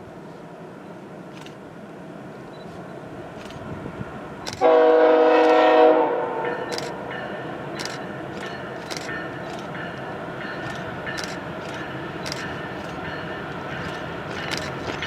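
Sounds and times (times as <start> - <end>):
train rumble: 0.0 - 15.0
locomotive air horn: 4.6 - 6.6.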